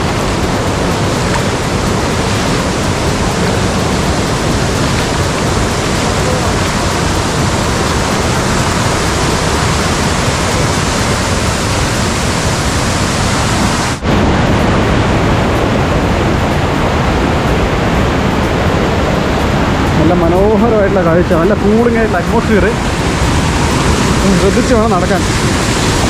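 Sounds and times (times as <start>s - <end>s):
rain: 0.0s - 26.0s
stream water rushing: 0.0s - 26.0s.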